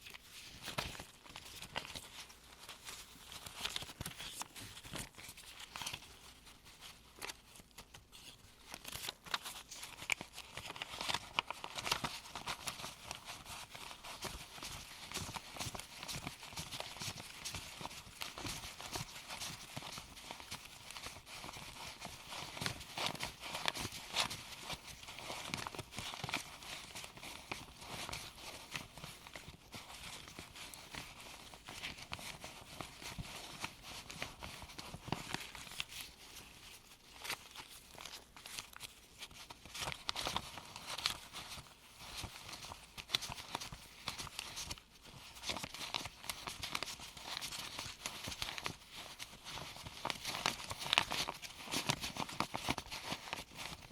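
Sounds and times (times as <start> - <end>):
paper bills rustling: 0.0 - 53.9.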